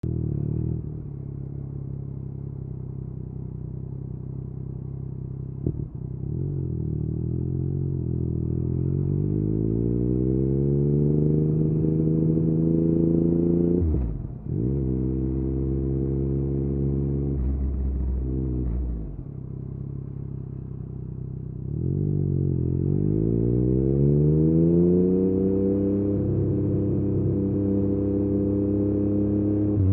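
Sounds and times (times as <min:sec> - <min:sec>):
motorcycle engine revving: 0:05.4 - 0:20.5, 0:21.6 - 0:29.9.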